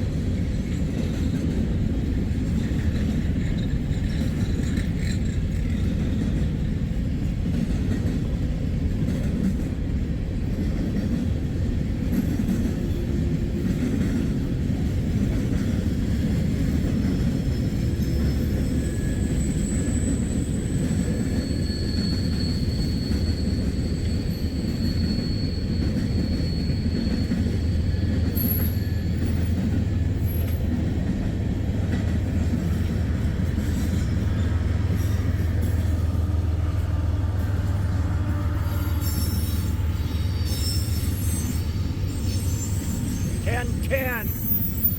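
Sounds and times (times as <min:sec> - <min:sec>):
freight train rumbling past: 0:00.0 - 0:44.9
high wheel squeals: 0:17.4 - 0:30.7, 0:32.6 - 0:44.9.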